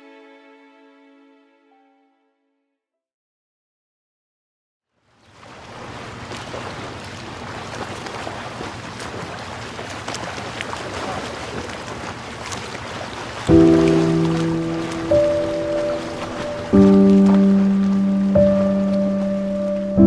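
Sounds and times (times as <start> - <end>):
waves washing onto sandy beach: 5.2 - 20.0.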